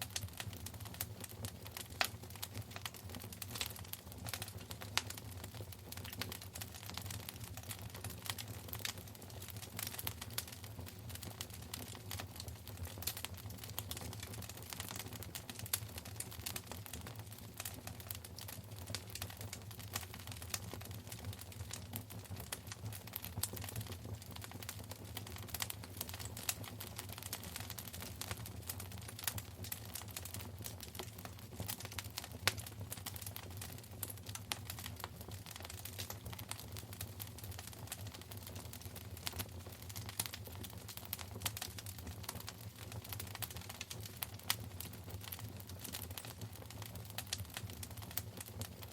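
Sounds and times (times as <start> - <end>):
low rumble of fire: 0.0 - 48.9
wood fire crackling and popping: 0.0 - 48.9.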